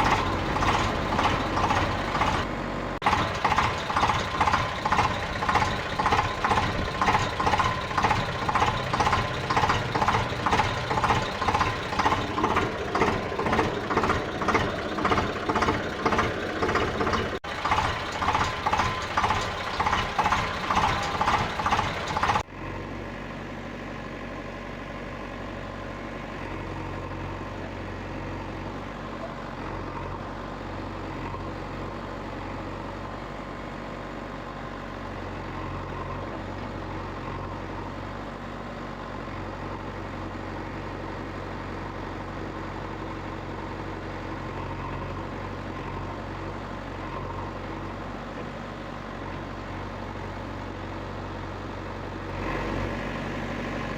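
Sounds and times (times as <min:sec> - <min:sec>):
loud pulsing engine: 0:00.0 - 0:25.3
low vehicle engine idling: 0:00.0 - 0:52.4.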